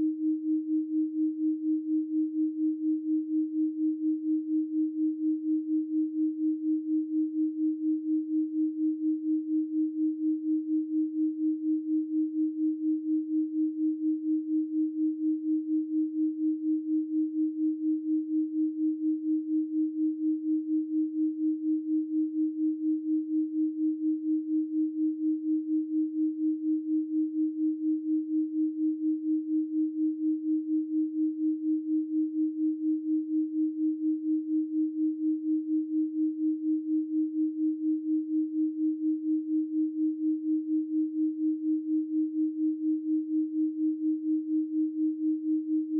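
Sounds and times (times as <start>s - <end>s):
pulsing sine tone: 0.0s - 45.9s.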